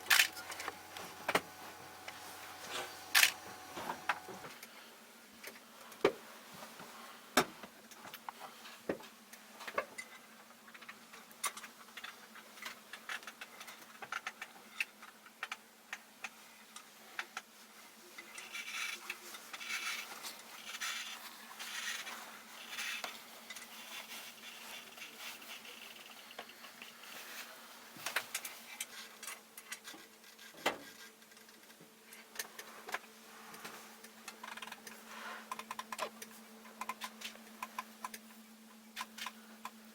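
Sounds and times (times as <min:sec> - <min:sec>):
steady electrical hum: 0:00.0 - 0:39.9
small clicks and knocks: 0:07.4 - 0:17.5.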